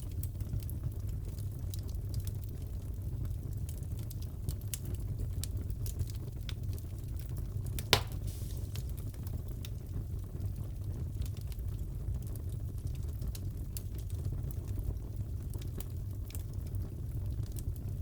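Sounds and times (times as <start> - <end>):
wood fire crackling: 0.0 - 18.0
sharp pop of fire: 7.8 - 9.2.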